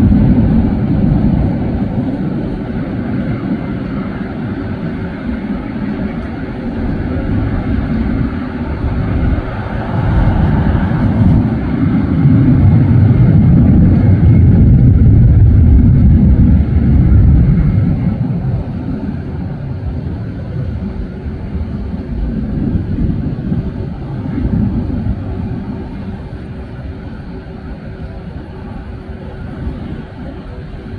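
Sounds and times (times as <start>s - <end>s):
jet airliner passing: 0.0s - 30.9s.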